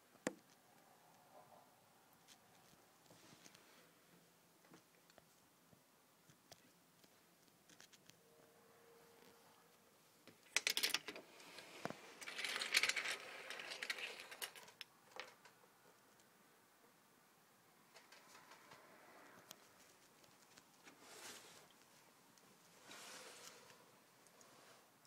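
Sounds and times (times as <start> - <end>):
rustling and scraping: 9.2 - 15.6, 17.9 - 25.0.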